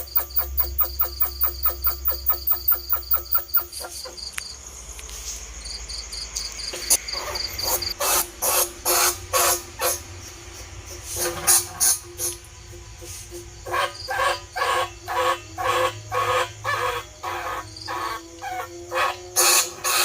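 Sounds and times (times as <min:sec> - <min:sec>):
rat squeaking calls: 0:00.0 - 0:04.2.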